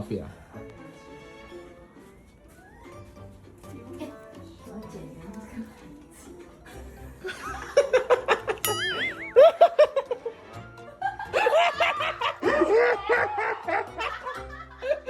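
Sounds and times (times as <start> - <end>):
background music: 0.0 - 15.0
people laughing: 6.6 - 15.0.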